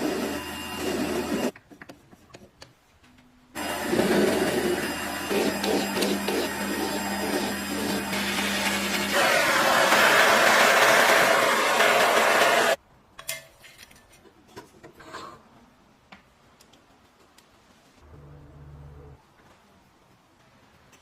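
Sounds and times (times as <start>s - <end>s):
loud mechanical power tool noise: 3.6s - 12.8s.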